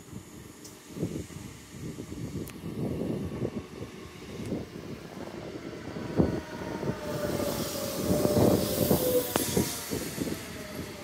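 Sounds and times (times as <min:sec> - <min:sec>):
hiss: 0:00.0 - 0:05.0, 0:06.9 - 0:11.0
train wheels rumbling on rails: 0:00.0 - 0:11.0
train whine: 0:00.0 - 0:11.0.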